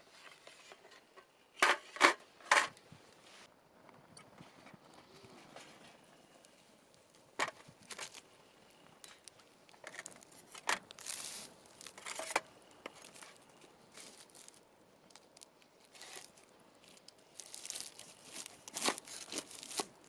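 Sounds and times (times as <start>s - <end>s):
dry material crinkling and tearing: 6.4s - 20.0s.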